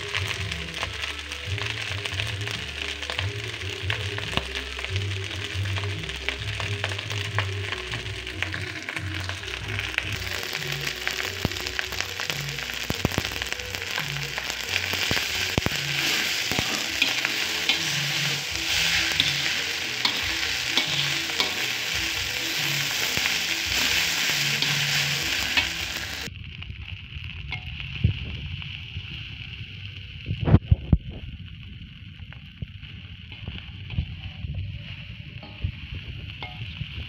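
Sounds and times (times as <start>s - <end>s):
fried rice sizzling in a wok: 0.0s - 37.0s
metal spatula scraping a wok: 14.3s - 26.3s.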